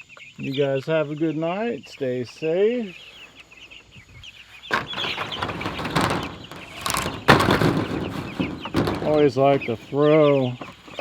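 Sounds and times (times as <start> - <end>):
material rustling and scraping: 4.7 - 9.9.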